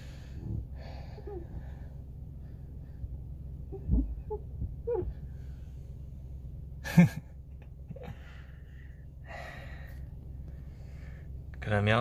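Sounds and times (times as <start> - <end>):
low hum inside car: 0.0 - 12.0.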